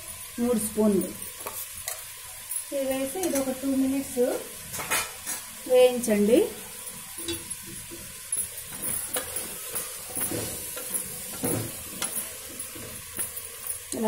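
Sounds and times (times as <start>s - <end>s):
chicken frying and sizzling: 0.0s - 14.0s
spatula scraping and knocking pot: 8.7s - 13.3s.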